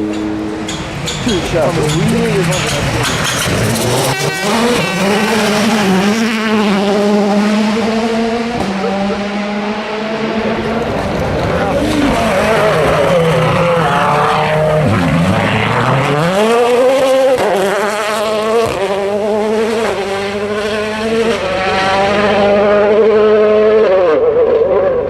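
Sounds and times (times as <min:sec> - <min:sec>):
rally car engine revving: 0:00.0 - 0:25.0.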